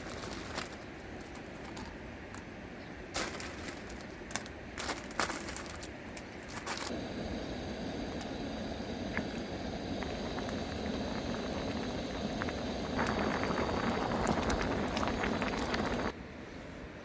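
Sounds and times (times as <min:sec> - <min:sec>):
soup bubbling at a boil: 0:06.9 - 0:16.2.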